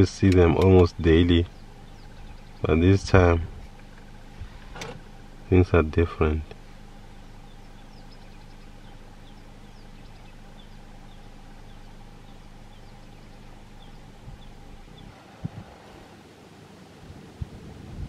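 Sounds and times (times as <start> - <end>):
car engine idling: 0.0 - 18.0
small bird chirping: 1.1 - 2.9, 6.5 - 15.2.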